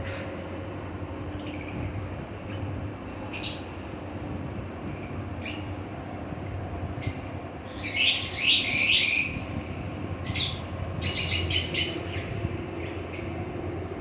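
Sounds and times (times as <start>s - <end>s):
parrots screeching: 7.8s - 9.4s.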